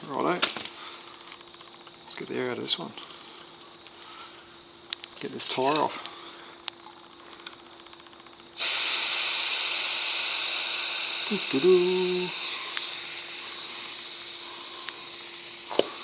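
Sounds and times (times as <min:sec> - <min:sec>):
air hissing out of tyre valve: 0:08.6 - 0:16.0.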